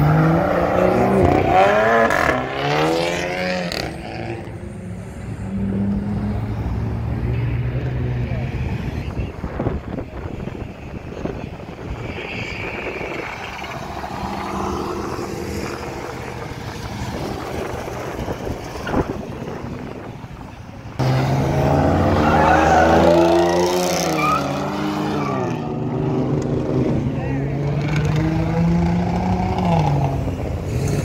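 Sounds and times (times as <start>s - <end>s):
car engines accelerating: 0.0s - 31.0s
tyre squeal: 22.1s - 25.6s.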